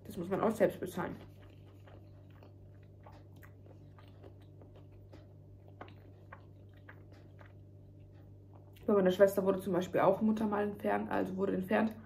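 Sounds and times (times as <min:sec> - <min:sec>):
faint chewing of bread: 0:00.0 - 0:09.6
low steady hum: 0:00.0 - 0:12.0.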